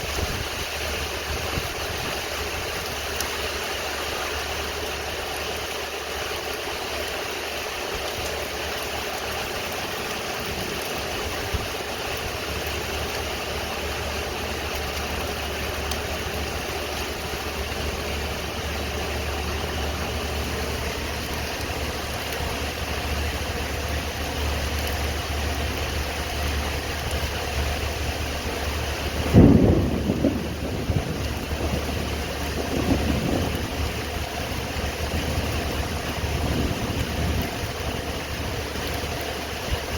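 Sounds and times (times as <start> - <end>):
steady rain: 0.0 - 39.9
low hum: 9.2 - 39.9
thunder clap rumbling: 9.7 - 23.8, 26.5 - 39.2.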